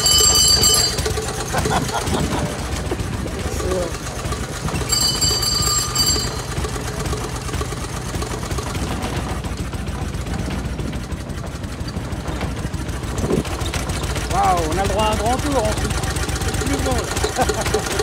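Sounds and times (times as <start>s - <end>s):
high metallic ringing: 0.0s - 1.4s, 4.8s - 7.4s
car engine idling: 0.0s - 18.0s.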